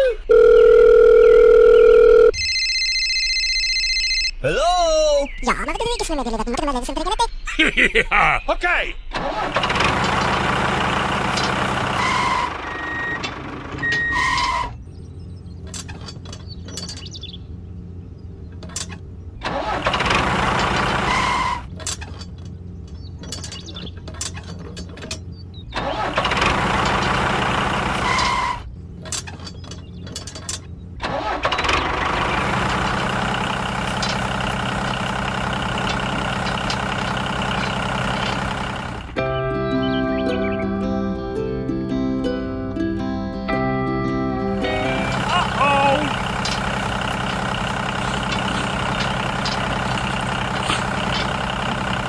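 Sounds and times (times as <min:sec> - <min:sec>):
tractor engine rumbling: 0:00.0 - 0:52.0.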